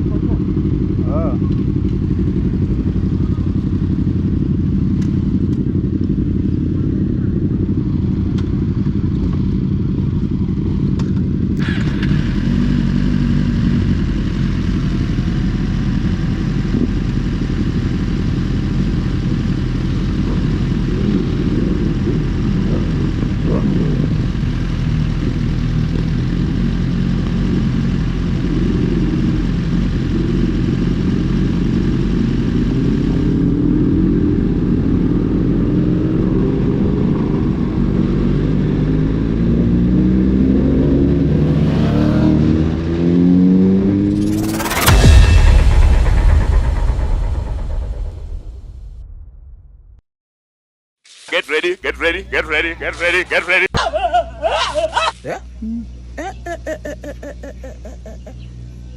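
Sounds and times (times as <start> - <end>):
motorcycle engine running: 0.0 - 45.4.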